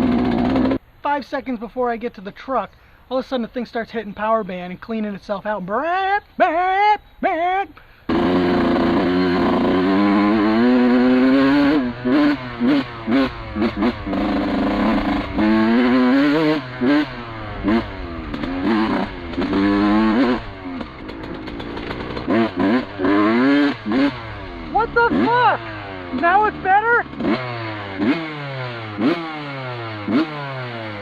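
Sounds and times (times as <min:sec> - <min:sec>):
dirt bike engine revving: 0:00.0 - 0:00.8, 0:08.1 - 0:31.0.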